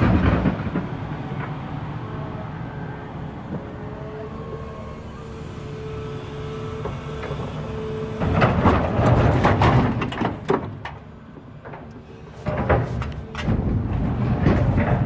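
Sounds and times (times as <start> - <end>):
excavator diesel engine: 0.0 - 15.0
hydraulic whine: 2.5 - 10.5
rocks tumbling into truck: 8.2 - 15.0.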